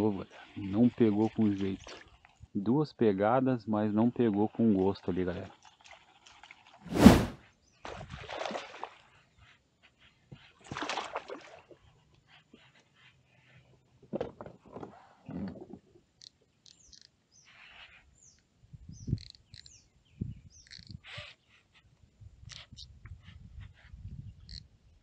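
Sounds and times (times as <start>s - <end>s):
noisy swishes: 6.9s - 7.4s.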